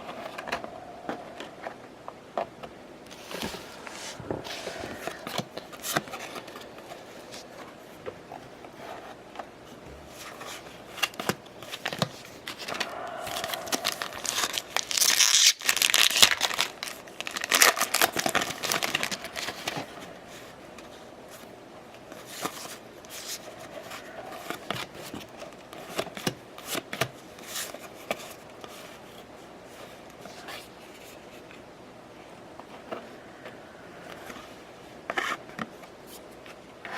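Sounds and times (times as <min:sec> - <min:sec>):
wrappers tearing and crinkling: 0:13.5 - 0:19.9.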